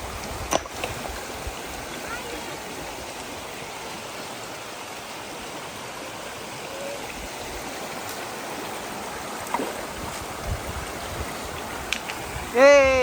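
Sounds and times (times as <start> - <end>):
stream water rushing over rocks: 0.0 - 13.0.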